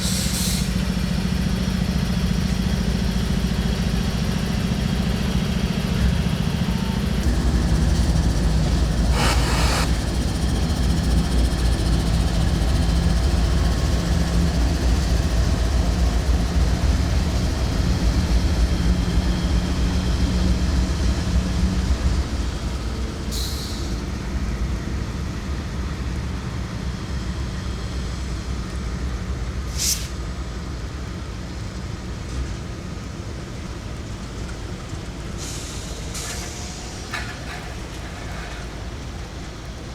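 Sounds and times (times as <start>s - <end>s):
diesel locomotive engine running: 0.0s - 29.6s
sharp hisses or squeals: 9.1s - 10.0s.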